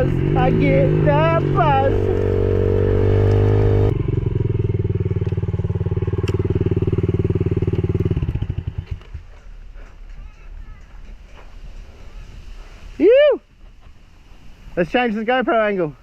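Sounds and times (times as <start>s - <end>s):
motorcycle engine idling: 0.0s - 10.1s.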